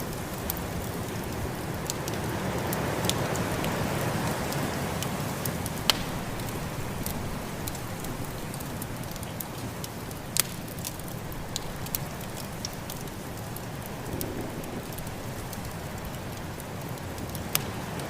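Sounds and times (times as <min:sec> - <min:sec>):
wood fire crackling and popping: 0:00.0 - 0:18.0
snowstorm wind rushing: 0:13.8 - 0:16.0.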